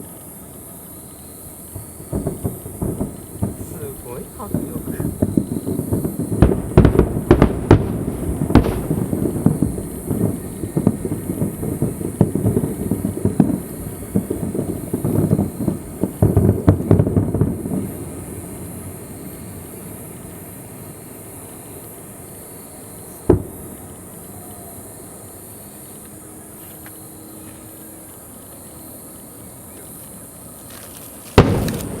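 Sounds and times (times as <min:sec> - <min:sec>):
distant fireworks bangs and crackles: 0:00.0 - 0:32.0.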